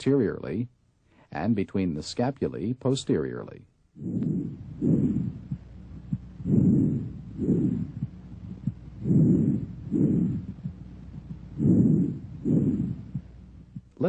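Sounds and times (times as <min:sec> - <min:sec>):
breath sounds through stethoscope: 0:04.0 - 0:13.9.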